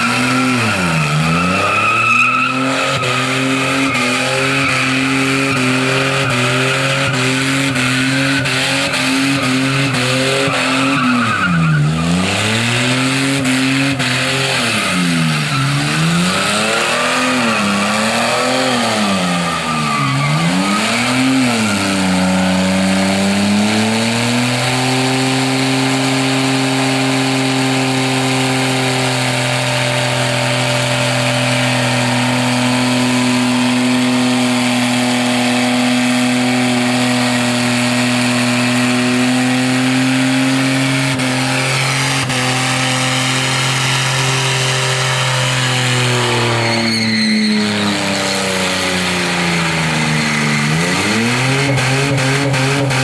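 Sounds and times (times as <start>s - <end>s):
car engine revving: 0.0s - 53.0s
tyres spinning on track: 29.0s - 42.4s.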